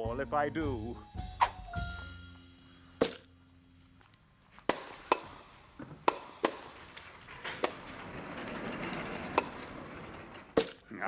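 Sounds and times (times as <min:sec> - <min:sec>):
sharp knocks: 0:03.0 - 0:03.4, 0:04.7 - 0:08.0.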